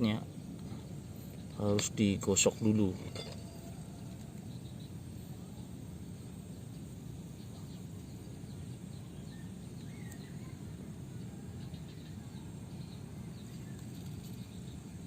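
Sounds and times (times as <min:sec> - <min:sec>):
low background noise: 0:00.0 - 0:15.0
faint high chirps: 0:07.4 - 0:14.8.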